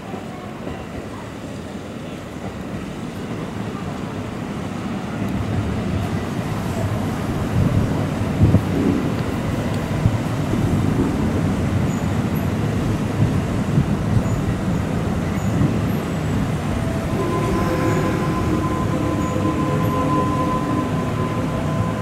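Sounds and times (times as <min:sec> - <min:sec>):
electric train rumble: 0:00.1 - 0:22.0
whine with held tones: 0:16.5 - 0:22.0.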